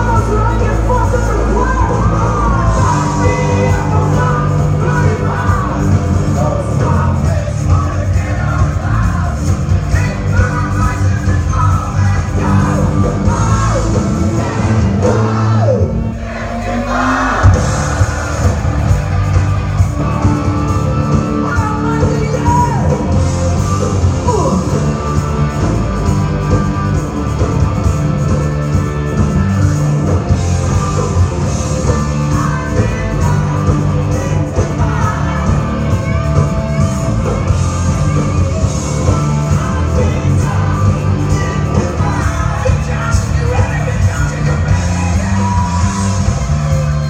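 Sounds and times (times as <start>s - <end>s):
person singing: 0.0s - 18.8s
live rock band playing: 0.0s - 47.0s.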